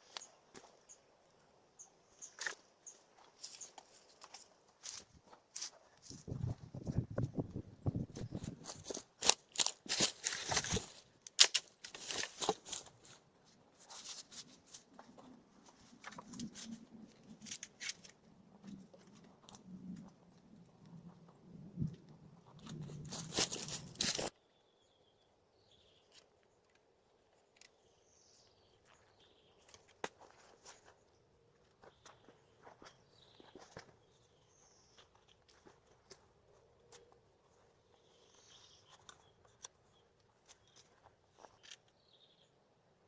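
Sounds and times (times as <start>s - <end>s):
rustling and crackling: 3.2s - 24.3s.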